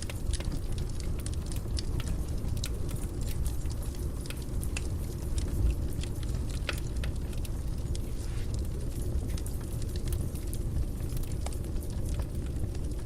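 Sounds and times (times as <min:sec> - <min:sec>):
fire crackling and popping: 0:00.0 - 0:13.0
low rumble of flames: 0:00.0 - 0:13.0.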